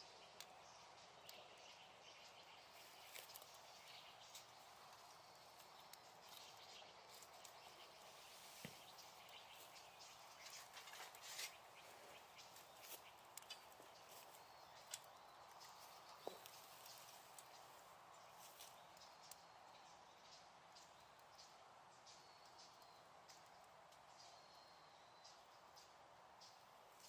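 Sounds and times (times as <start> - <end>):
wood fire crackling and popping: 0.3 - 17.6.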